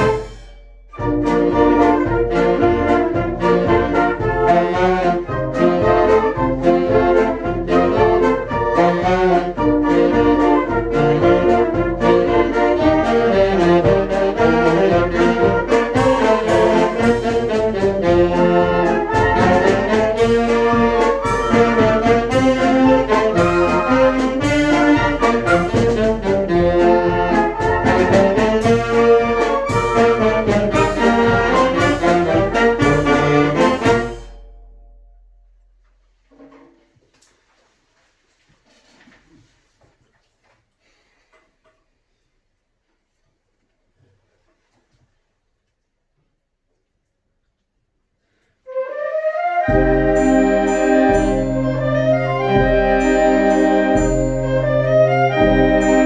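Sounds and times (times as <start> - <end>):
wind band playing: 0.0 - 35.1, 48.7 - 56.0.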